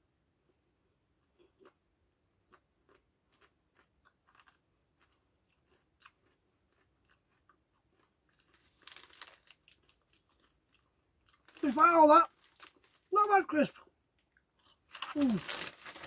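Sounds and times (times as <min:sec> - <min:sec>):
faint crunching of crisps: 0:02.4 - 0:16.0
crisp packet rustling: 0:08.3 - 0:10.6, 0:11.4 - 0:13.3, 0:14.9 - 0:16.0.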